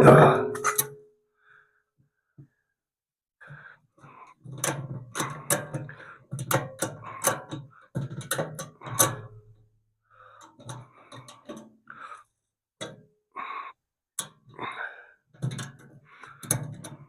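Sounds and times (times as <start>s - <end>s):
sharp knocks and clicks: 4.5s - 9.4s.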